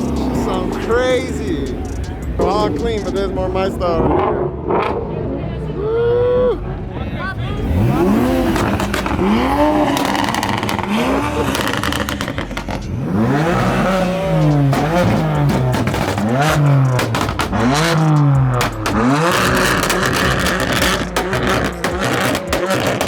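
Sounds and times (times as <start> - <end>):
engine idling: 0.0 - 4.0, 5.6 - 23.0
engine revving: 0.0 - 23.0.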